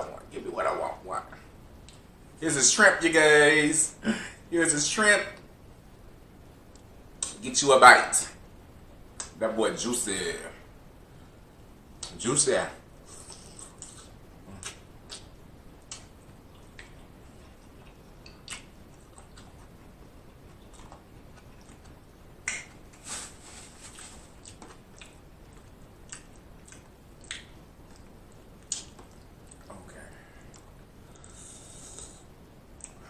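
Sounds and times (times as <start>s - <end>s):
chewing mouth clicks and smacks: 13.2s - 23.0s, 24.4s - 29.8s, 30.4s - 31.4s.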